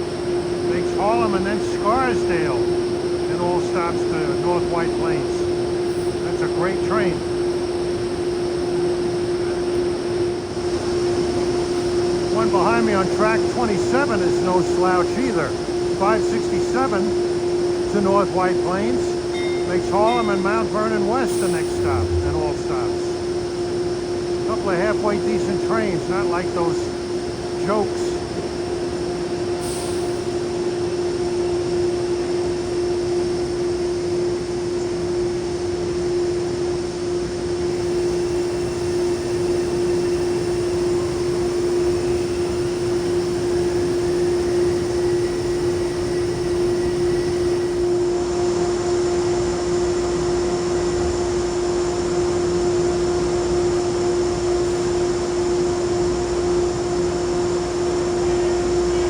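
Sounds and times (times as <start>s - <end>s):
electrical hum: 0.0s - 59.0s
trains droning at platform: 0.0s - 59.0s.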